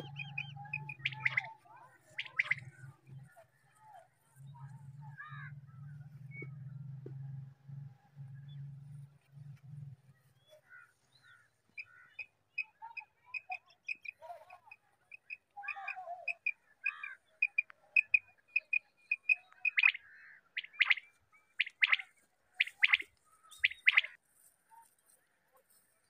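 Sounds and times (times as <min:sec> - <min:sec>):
birds high pips: 0:00.0 - 0:03.4, 0:15.2 - 0:24.2
sharp bird calls: 0:00.0 - 0:07.1, 0:10.3 - 0:24.2.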